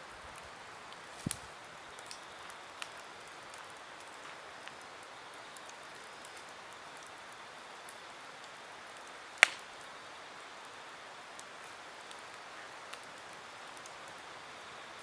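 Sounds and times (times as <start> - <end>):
campfire hissing and crackling: 0.0 - 15.0
loud sharp fire pop: 1.2 - 1.5, 9.4 - 9.6.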